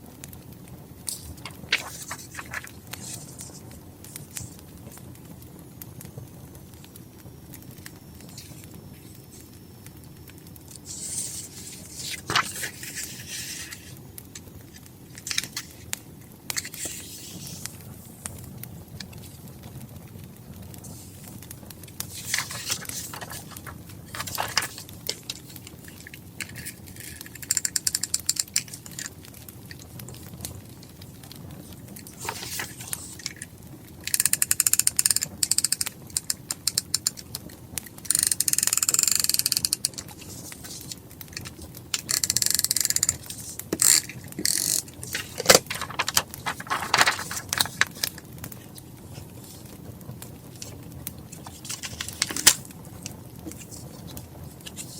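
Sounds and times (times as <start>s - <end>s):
crackling wood fire: 0.0s - 54.9s
paper and stationery handling: 1.1s - 4.5s, 10.7s - 15.9s, 16.5s - 17.8s, 22.0s - 29.9s, 31.6s - 37.3s, 38.1s - 49.8s, 50.5s - 54.9s
rapid clicking: 21.9s - 30.2s, 32.0s - 48.2s.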